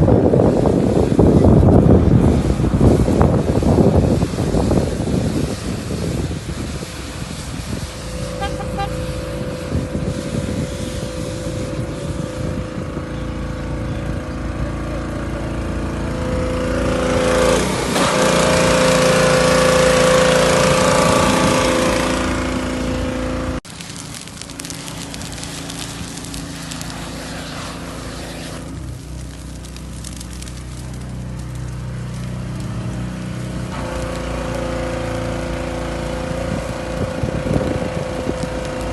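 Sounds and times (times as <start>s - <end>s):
motor vehicle engine running: 0.0s - 38.9s
faint crackling: 23.7s - 34.3s.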